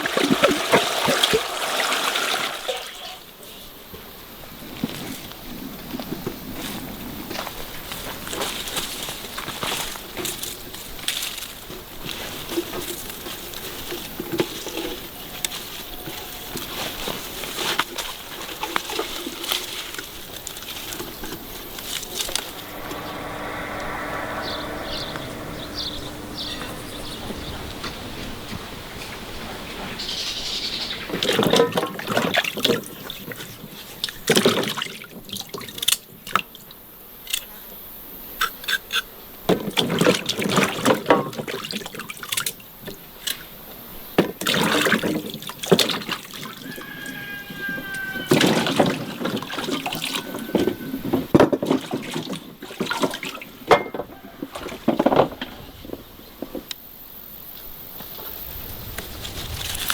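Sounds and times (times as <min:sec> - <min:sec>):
water splashing and pouring: 0:00.0 - 0:03.2, 0:44.4 - 0:53.7.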